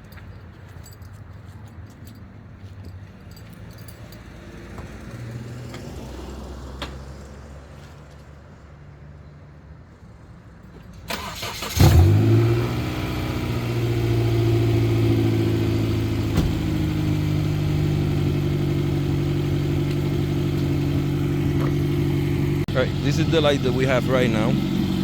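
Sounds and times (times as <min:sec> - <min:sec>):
car engine revving and idling: 0:11.2 - 0:25.0.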